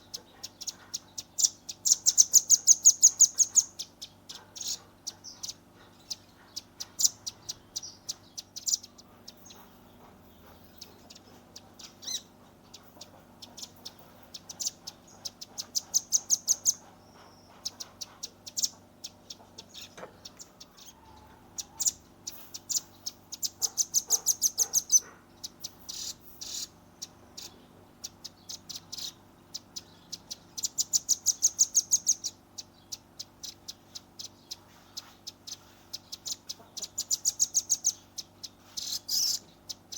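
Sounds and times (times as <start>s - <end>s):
bird rattling trill: 0.4s - 26.7s, 30.3s - 39.9s
bird high chips: 33.7s - 39.4s.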